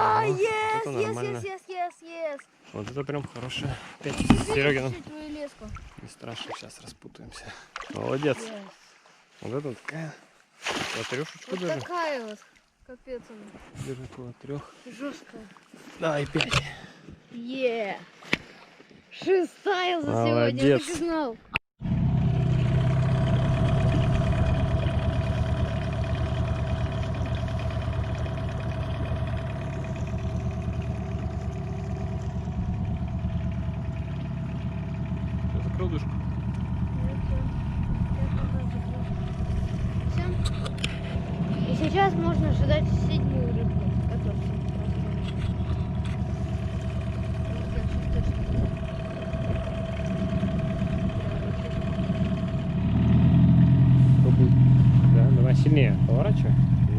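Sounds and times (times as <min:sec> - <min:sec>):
motorboat engine running: 0:00.0 - 0:01.4, 0:02.9 - 0:06.1, 0:21.8 - 0:56.9.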